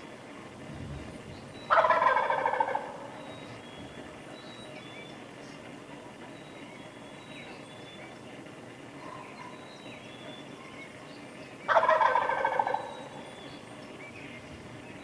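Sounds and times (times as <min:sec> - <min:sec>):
songbirds chirping faintly: 0:00.0 - 0:15.0
turkey gobbling: 0:01.6 - 0:03.6, 0:11.6 - 0:13.6.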